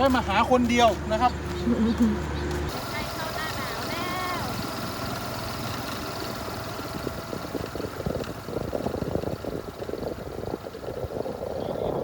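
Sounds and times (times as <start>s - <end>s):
vehicle engine running: 0.0s - 12.0s
rattling and crackling: 2.5s - 11.5s.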